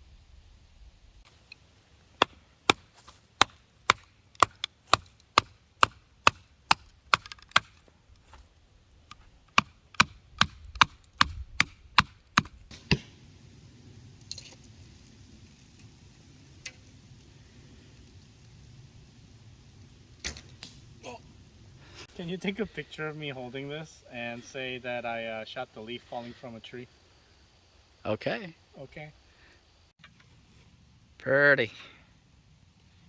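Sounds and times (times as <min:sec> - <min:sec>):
wood being chopped: 0:02.1 - 0:08.4, 0:09.1 - 0:13.1.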